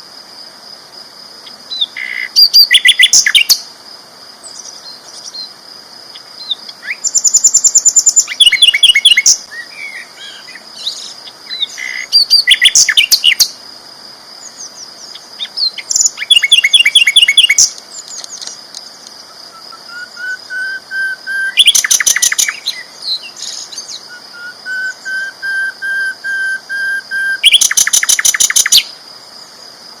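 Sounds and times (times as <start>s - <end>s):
bird whistled notes: 24.1s - 28.9s.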